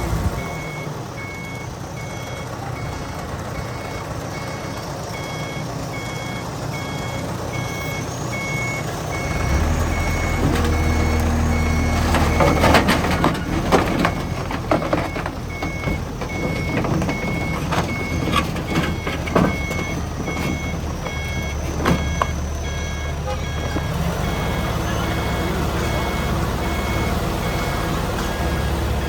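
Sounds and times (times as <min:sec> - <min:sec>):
diesel engine running: 0:00.0 - 0:29.0
reversing alarm beeping: 0:00.4 - 0:29.0
metal clanks and knocks: 0:11.9 - 0:22.4.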